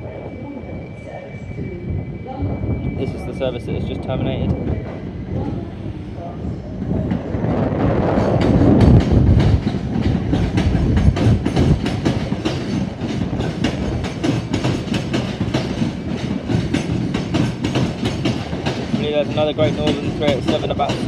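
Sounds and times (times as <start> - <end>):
heavy train rumble: 0.0 - 21.0
train wheels clicking over joints: 7.9 - 21.0.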